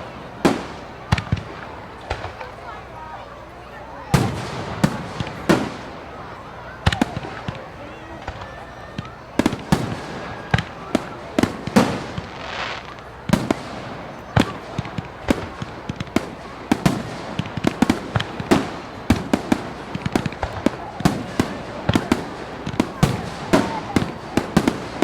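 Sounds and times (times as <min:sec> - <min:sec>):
fireworks bangs: 0:00.0 - 0:25.0
fireworks crackling: 0:00.0 - 0:25.0.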